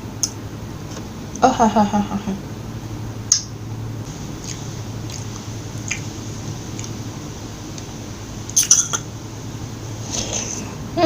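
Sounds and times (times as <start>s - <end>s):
wet mouth sounds of eating: 4.4s - 6.1s, 6.7s - 7.0s.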